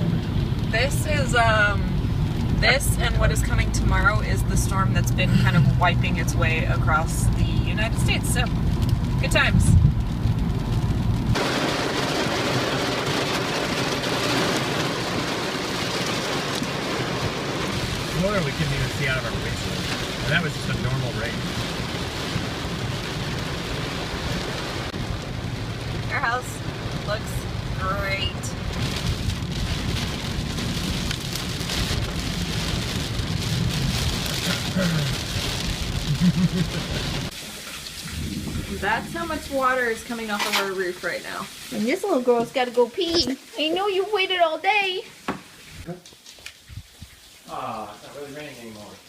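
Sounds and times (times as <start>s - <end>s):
low rumble: 0.0s - 11.6s, 17.3s - 41.6s
heavy rain on car roof: 0.0s - 49.0s.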